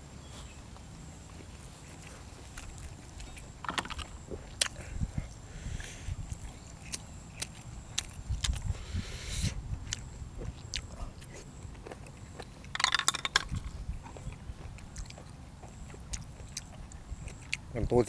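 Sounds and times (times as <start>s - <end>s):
person chewing food: 0.2s - 17.7s
wet mouth clicks: 6.3s - 8.7s.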